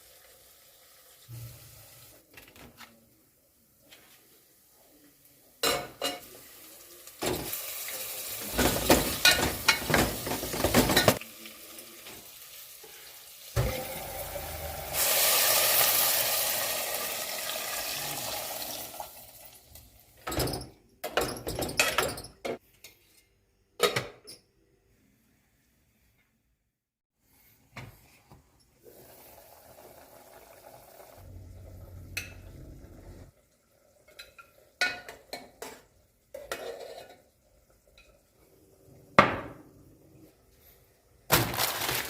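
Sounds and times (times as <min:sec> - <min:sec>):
utensils clattering on dishes: 0:08.4 - 0:11.2, 0:20.2 - 0:22.6.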